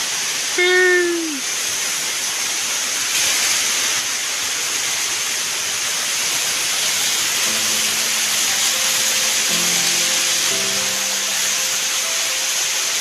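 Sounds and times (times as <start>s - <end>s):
waterfall rushing: 0.0s - 13.0s
background music with held notes: 7.3s - 13.0s.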